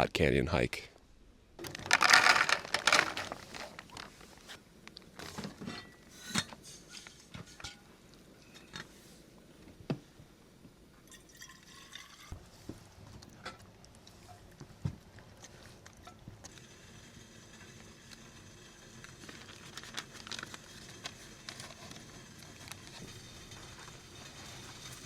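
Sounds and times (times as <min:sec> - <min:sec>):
water pouring: 0:01.6 - 0:04.1, 0:11.1 - 0:12.4.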